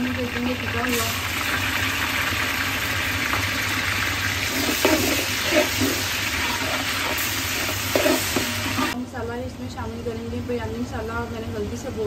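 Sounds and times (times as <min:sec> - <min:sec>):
onions sizzling in hot oil: 0:00.0 - 0:09.0.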